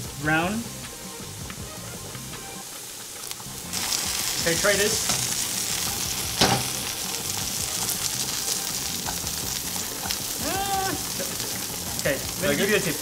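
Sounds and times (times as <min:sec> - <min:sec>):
food sizzling in a pan: 0:00.0 - 0:13.0
pan knocking: 0:06.3 - 0:06.8.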